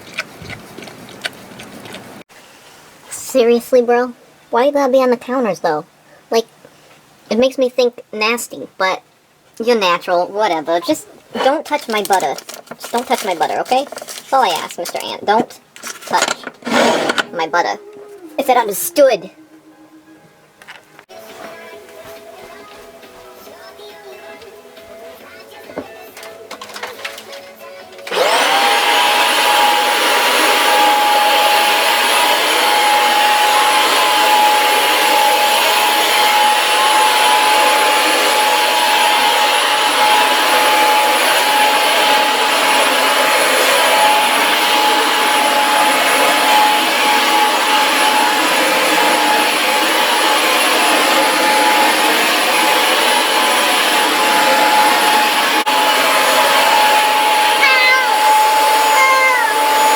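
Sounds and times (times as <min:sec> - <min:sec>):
vacuum cleaner motor whine: 0:16.1 - 0:17.5, 0:28.0 - 0:59.9.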